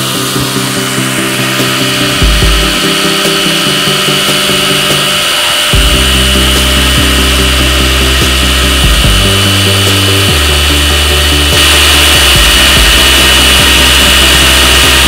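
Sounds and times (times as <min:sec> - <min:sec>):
background music: 0:00.0 - 0:15.0
electric power tool whining: 0:00.0 - 0:15.0.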